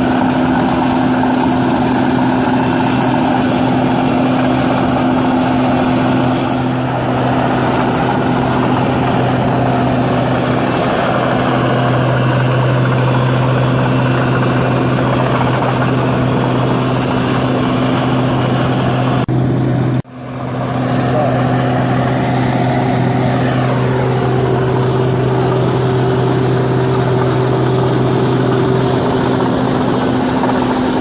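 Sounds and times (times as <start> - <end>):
combine harvester drone: 0.0 - 31.0.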